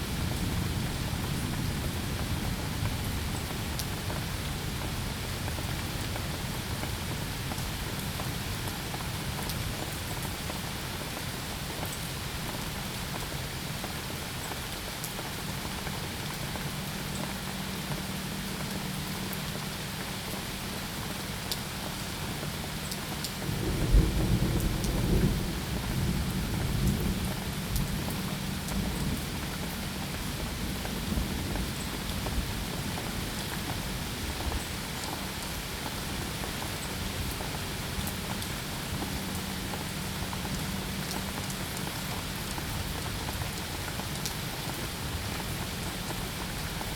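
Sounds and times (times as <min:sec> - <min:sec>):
rain falling: 0:00.0 - 0:46.9
thunder rumbling: 0:23.4 - 0:31.7.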